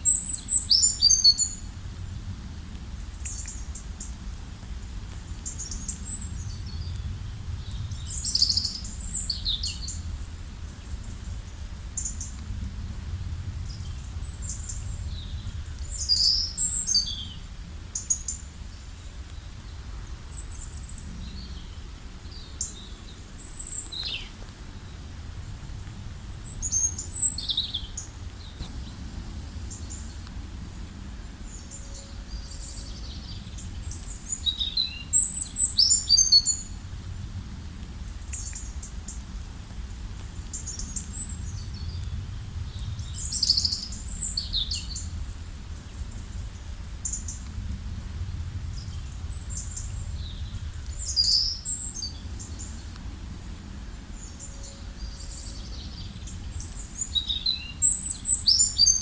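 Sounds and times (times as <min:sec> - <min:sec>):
songbirds chirping and whistling: 0:00.0 - 0:01.8, 0:05.4 - 0:12.4, 0:13.4 - 0:25.1, 0:26.4 - 0:36.8, 0:40.4 - 0:45.2, 0:48.5 - 0:53.0, 0:54.0 - 0:59.0
low outdoor rumble: 0:00.0 - 0:58.8.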